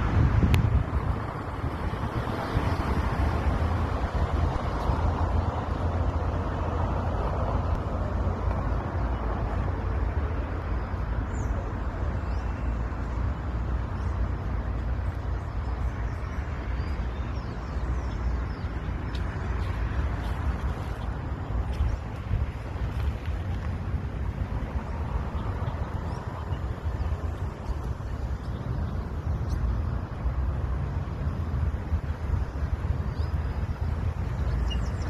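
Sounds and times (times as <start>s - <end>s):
city traffic: 0.0s - 35.0s
wind rumbling on microphone: 0.0s - 35.0s
birds chirping: 8.8s - 23.7s, 24.5s - 30.2s, 32.4s - 35.0s.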